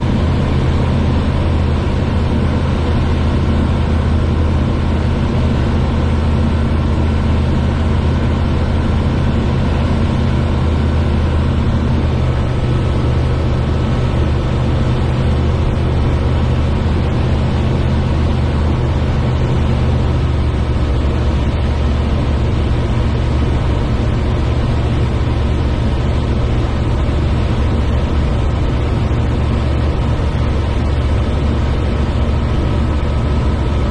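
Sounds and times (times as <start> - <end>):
small airplane engine droning: 0.0 - 33.9.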